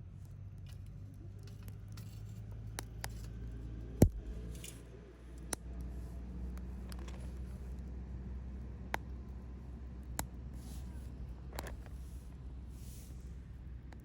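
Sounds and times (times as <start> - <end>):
low steady rumble: 0.0 - 14.0
campfire crackling and popping: 4.0 - 4.5.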